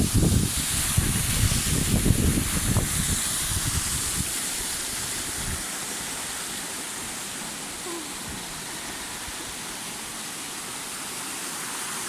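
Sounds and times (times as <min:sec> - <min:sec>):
wind buffeting microphone: 0:00.0 - 0:05.6
waterfall rushing: 0:00.0 - 0:12.0.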